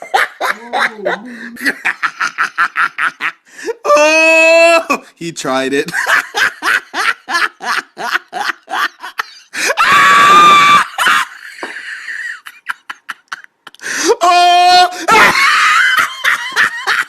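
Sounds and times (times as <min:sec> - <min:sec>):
person laughing: 0:00.0 - 0:03.4, 0:05.9 - 0:17.0
person screaming: 0:03.7 - 0:05.0, 0:09.6 - 0:11.1, 0:13.9 - 0:15.6.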